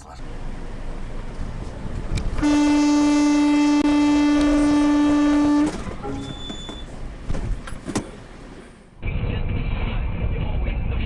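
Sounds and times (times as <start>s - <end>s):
road noise: 0.0s - 9.4s
vehicle horn blast: 2.4s - 6.9s.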